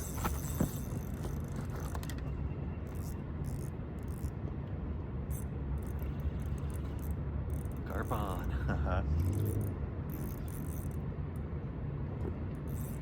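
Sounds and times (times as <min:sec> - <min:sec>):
fishing reel whirring: 0:00.0 - 0:02.2, 0:02.8 - 0:04.4, 0:05.3 - 0:08.4, 0:09.2 - 0:11.0, 0:12.6 - 0:13.0.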